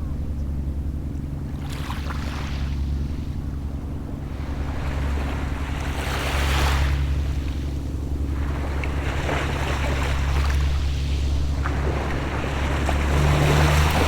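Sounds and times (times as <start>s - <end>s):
low engine drone: 0.0s - 14.0s
small waves washing on shore: 4.2s - 14.0s.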